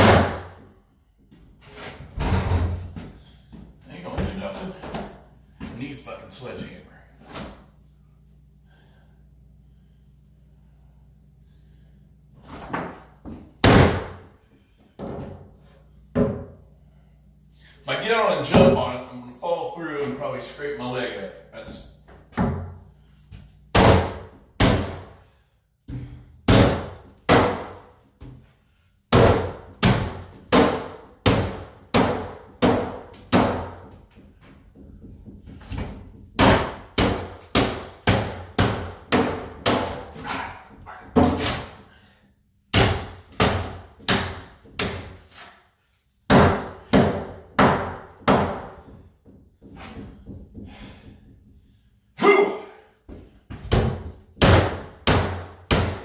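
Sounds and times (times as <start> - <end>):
heavy blows smashing cabinet: 0.0 - 0.6, 13.6 - 14.2, 26.4 - 27.8, 53.6 - 56.0.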